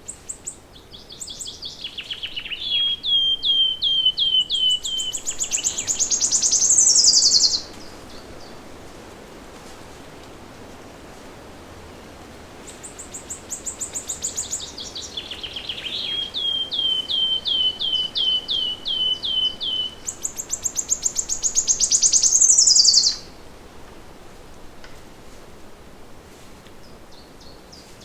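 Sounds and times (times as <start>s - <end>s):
songbird singing: 0.0s - 8.7s, 12.6s - 23.5s, 26.7s - 28.0s
faint background hiss: 0.0s - 28.0s.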